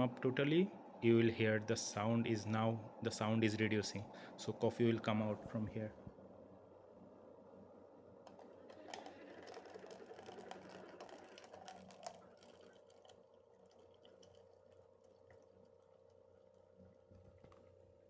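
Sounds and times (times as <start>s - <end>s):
steady low hum: 0.0s - 18.0s
coffee maker gurgling and crackling: 8.3s - 17.8s.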